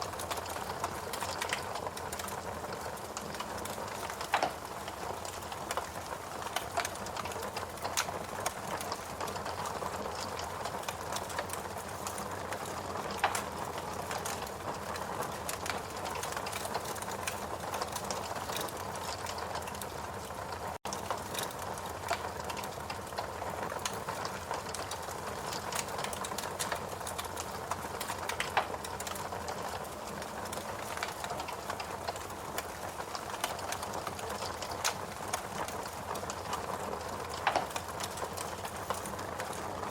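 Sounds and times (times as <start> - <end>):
fireplace crackling: 0.0 - 39.9.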